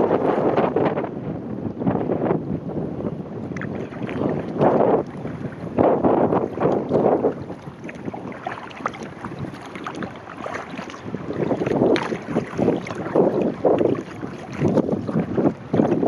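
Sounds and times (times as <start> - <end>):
wind buffeting microphone: 0.0 - 16.0
paddle water splashing: 3.4 - 16.0.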